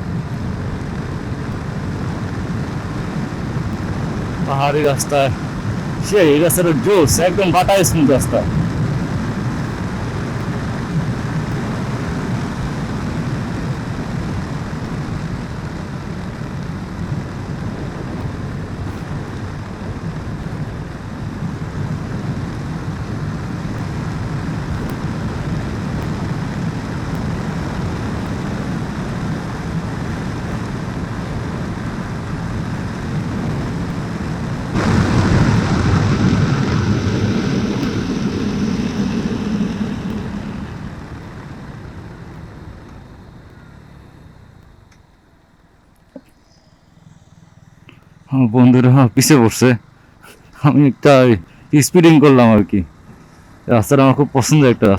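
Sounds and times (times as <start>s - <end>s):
wind buffeting microphone: 0.0s - 43.6s.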